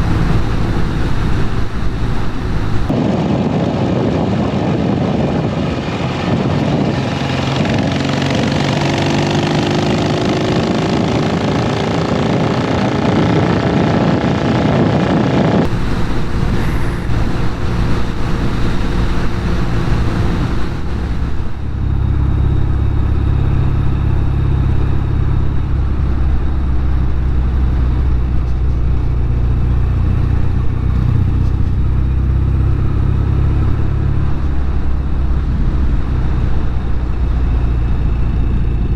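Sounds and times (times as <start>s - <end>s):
wind rushing: 0.0s - 26.7s
motorcycle engine accelerating: 0.0s - 38.9s.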